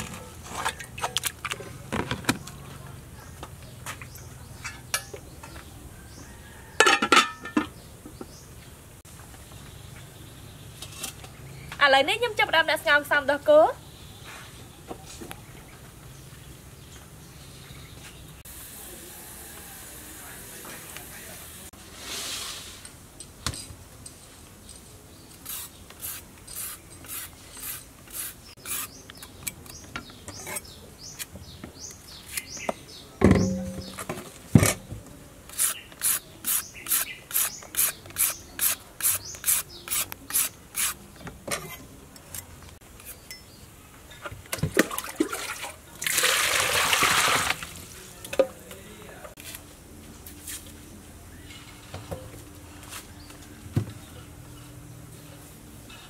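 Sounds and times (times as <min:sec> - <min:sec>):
peeler scraping carrot: 0:25.4 - 0:29.0, 0:35.5 - 0:41.0
water splashing in metal bowl: 0:44.7 - 0:47.8.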